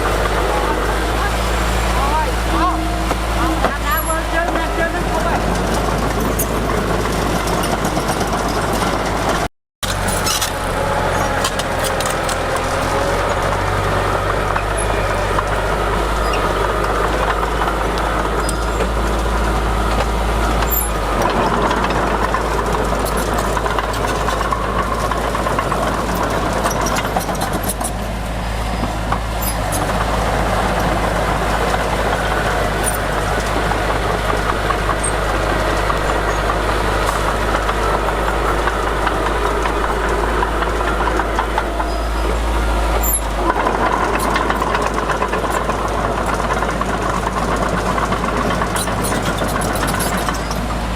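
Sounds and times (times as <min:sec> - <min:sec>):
diesel machinery engine hum: 0:00.0 - 0:50.9
metallic clanks and rattles: 0:02.1 - 0:30.2, 0:30.8 - 0:50.9.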